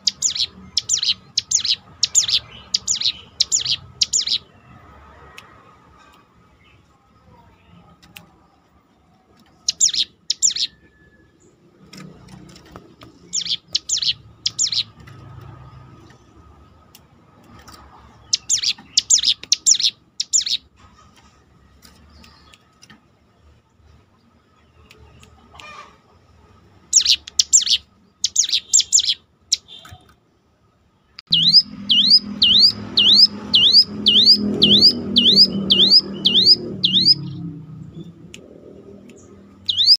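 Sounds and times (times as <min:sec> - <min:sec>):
bird calling high notes: 0:31.3 - 0:37.4, 0:39.6 - 0:40.0.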